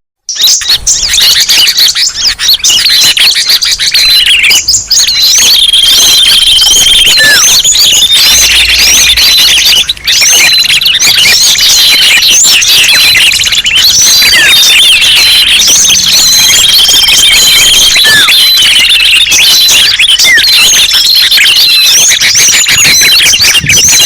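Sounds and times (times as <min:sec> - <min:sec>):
high bird whistles and trills: 0:00.3 - 0:24.0
small birds chirping and calling: 0:00.3 - 0:24.0.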